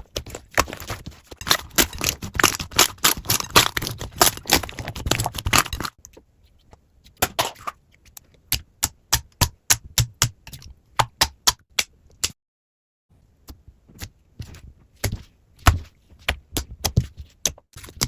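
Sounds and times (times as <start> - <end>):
slime crackling and popping: 0.0 - 5.9.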